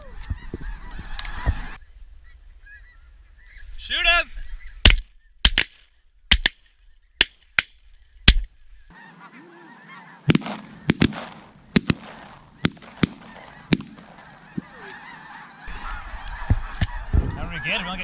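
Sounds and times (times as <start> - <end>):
snow geese honking: 8.8 - 18.0
shotgun shots: 10.2 - 14.7.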